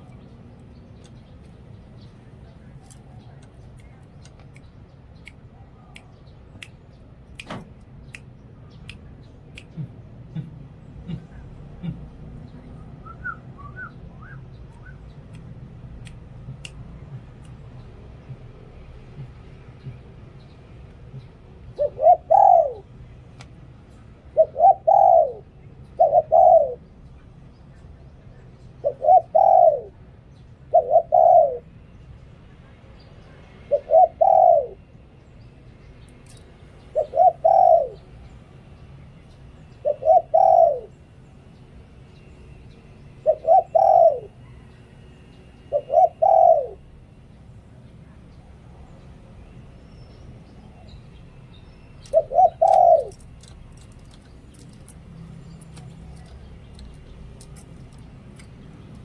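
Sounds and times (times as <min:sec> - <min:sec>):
dove cooing: 0:21.7 - 0:22.9, 0:24.3 - 0:26.8, 0:28.8 - 0:30.0, 0:30.7 - 0:31.7, 0:33.7 - 0:34.8, 0:36.8 - 0:38.2, 0:39.7 - 0:41.0, 0:43.2 - 0:44.8, 0:45.6 - 0:47.0, 0:52.0 - 0:59.0.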